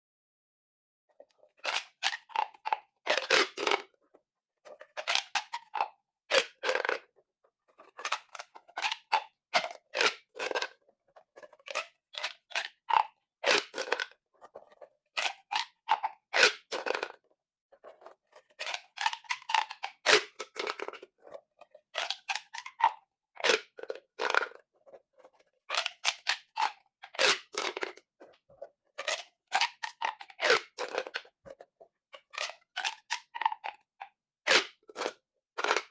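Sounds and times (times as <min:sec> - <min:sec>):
plastic pop tubes clicking: 0:34.5 - 0:35.9.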